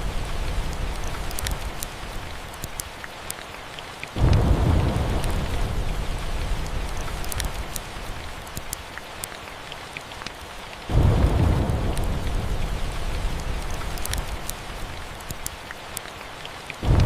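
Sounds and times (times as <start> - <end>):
thunder rumbling: 0.0 - 2.3, 4.2 - 8.2, 10.9 - 15.3
steady rain: 0.0 - 17.0
wood fire crackling: 0.0 - 17.0.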